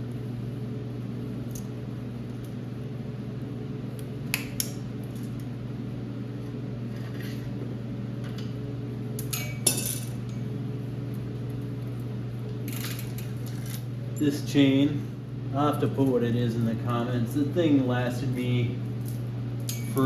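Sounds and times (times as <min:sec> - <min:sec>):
steady low hum: 0:00.0 - 0:20.0
bicycle chain clinking: 0:19.0 - 0:20.0.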